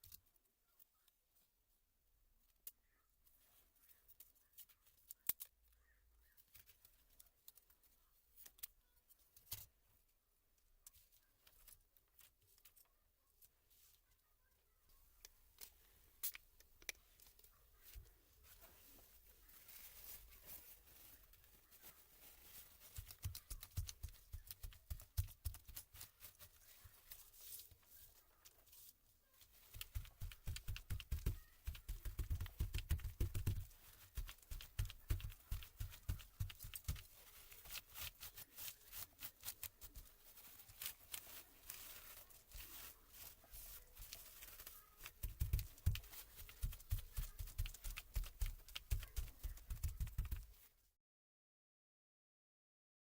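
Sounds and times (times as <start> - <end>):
laptop parts clicking and knocking: 23.0 - 26.0, 29.7 - 37.1.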